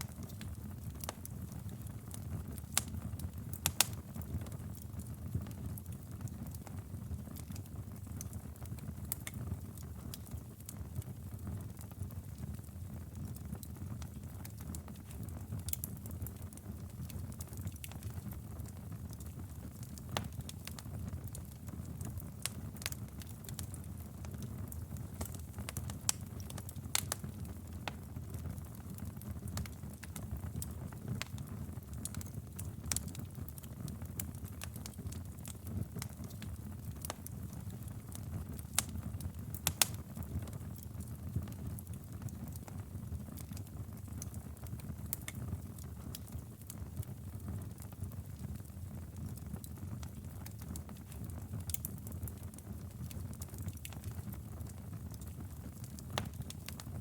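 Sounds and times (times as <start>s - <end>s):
wood fire crackling: 0.0s - 57.0s
sharp pops and snaps: 3.6s - 4.0s, 34.2s - 38.9s, 39.6s - 40.2s, 45.1s - 45.4s, 55.2s - 56.8s.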